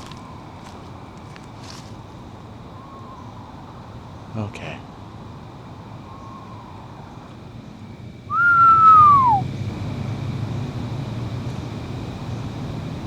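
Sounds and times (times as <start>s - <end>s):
person whistling owl call: 8.3s - 9.4s.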